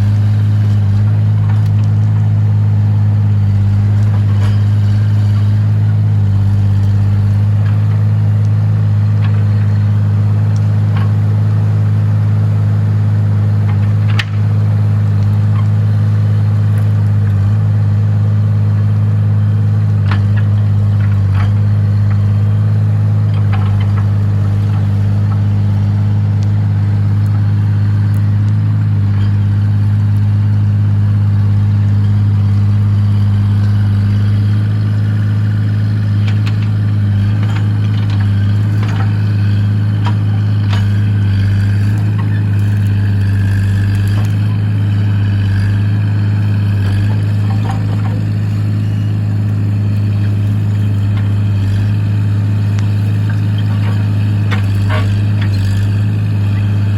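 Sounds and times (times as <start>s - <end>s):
excavator engine running: 0.0s - 56.9s
clanks and knocks: 23.3s - 24.9s, 36.2s - 39.3s, 46.7s - 48.4s.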